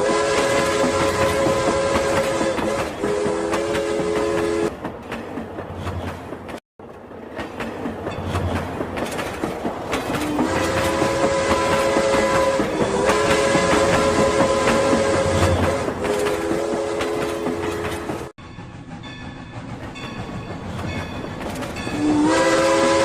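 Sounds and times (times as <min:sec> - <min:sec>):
toy train electronic horn: 0:00.0 - 0:04.7, 0:10.4 - 0:18.0, 0:22.0 - 0:23.0.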